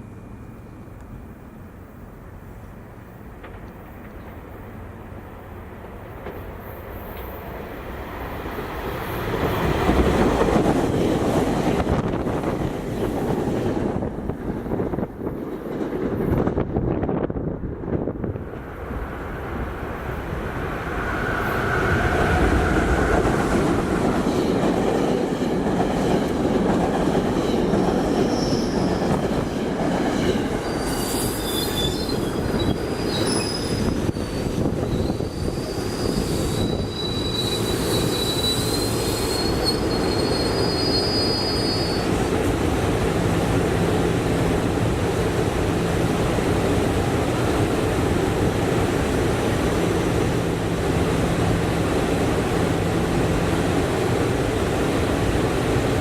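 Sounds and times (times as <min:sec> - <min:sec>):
electric train rumbling past: 0:00.0 - 0:56.0
high wheel squeal: 0:28.2 - 0:29.0, 0:30.6 - 0:42.2.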